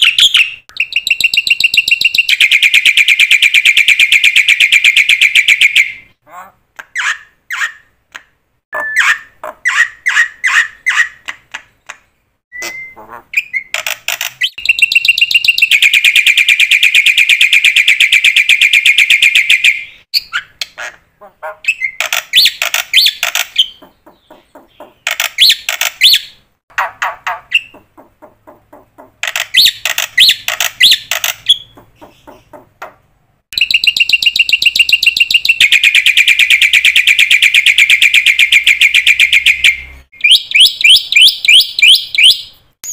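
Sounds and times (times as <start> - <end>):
bird calling with harsh buzzy notes: 12.5 - 20.6.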